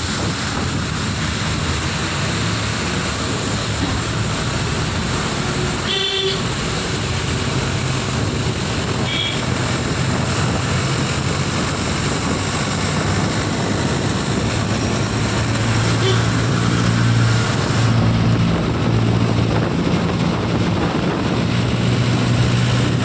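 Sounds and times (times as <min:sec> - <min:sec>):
vehicle road noise: 0:00.0 - 0:23.0
vehicle horn toot: 0:05.8 - 0:06.5, 0:09.0 - 0:09.4, 0:16.0 - 0:16.3.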